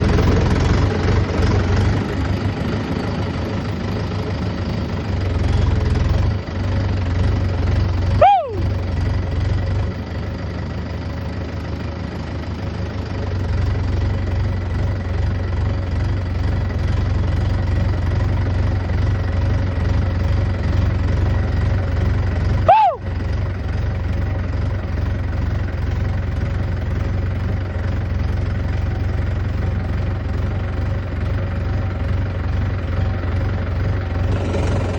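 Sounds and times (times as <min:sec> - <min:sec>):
peafowl call: 0:08.2 - 0:08.7, 0:22.7 - 0:23.0.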